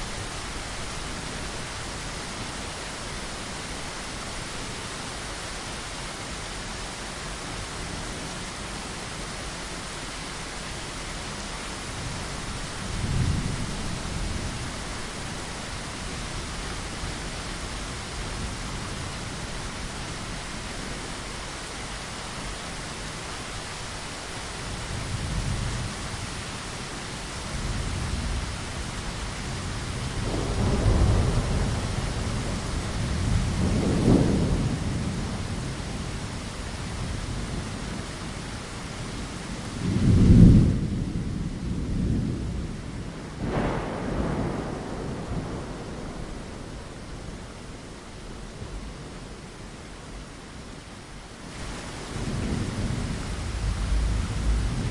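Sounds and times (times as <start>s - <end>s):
rain pattering against a window: 0.0s - 54.9s
thunder rumbling: 27.6s - 38.1s, 39.5s - 49.8s, 51.6s - 54.9s.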